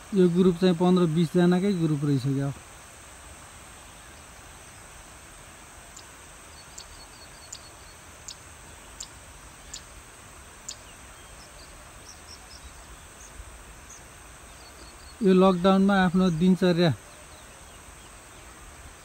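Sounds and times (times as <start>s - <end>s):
steady insect hum: 0.0s - 19.0s
faint bird twittering: 5.9s - 19.0s.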